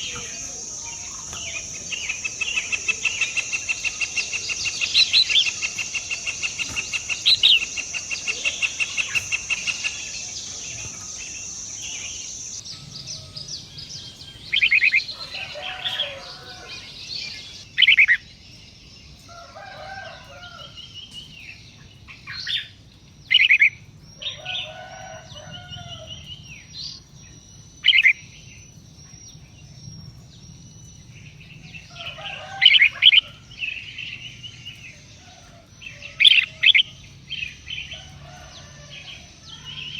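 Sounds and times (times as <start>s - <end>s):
high pulsing buzz: 0.0s - 17.7s
birds calling: 0.0s - 39.9s.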